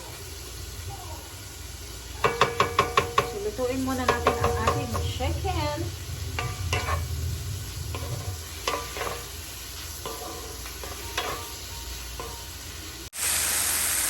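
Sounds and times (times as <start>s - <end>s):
chicken sizzling in a pan: 0.0s - 14.0s
utensil scraping a pan: 2.2s - 13.0s.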